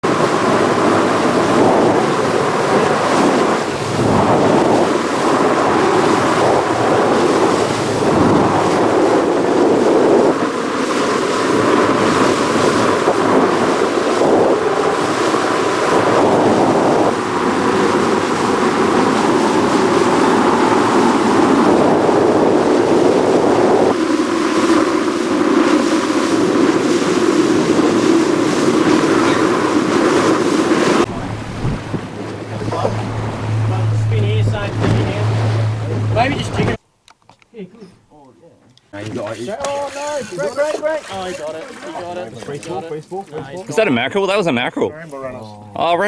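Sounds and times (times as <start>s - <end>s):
wind and water rushing: 0.0s - 36.8s, 40.8s - 44.7s
wind buffeting microphone: 0.0s - 36.8s.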